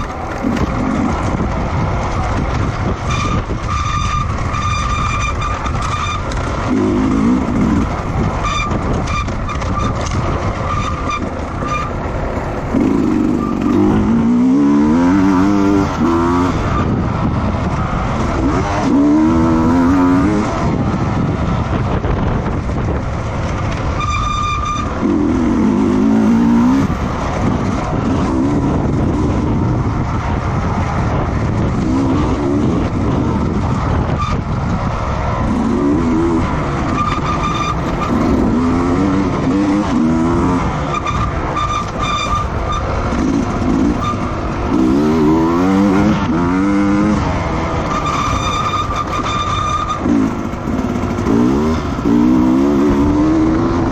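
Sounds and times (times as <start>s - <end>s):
racing motorcycles passing: 0.0s - 24.2s, 24.8s - 53.9s.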